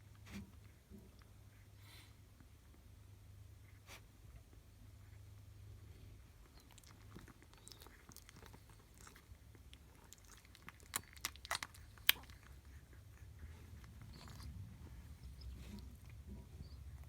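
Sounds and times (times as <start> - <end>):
puppies scratching: 6.5 - 17.0.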